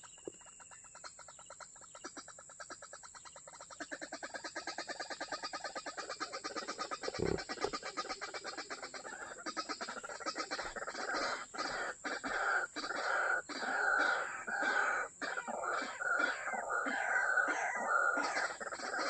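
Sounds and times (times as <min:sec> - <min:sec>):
waterhens calling harshly: 0:06.6 - 0:07.9, 0:09.0 - 0:19.0.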